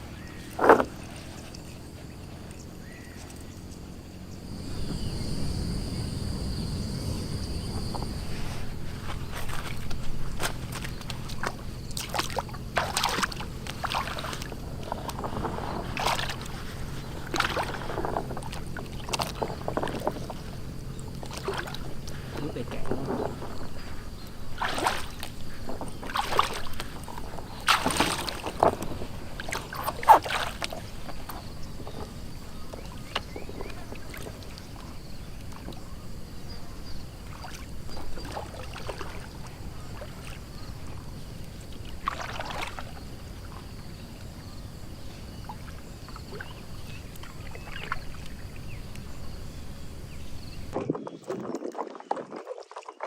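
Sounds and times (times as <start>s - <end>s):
water splashing and sloshing: 0.0s - 53.0s.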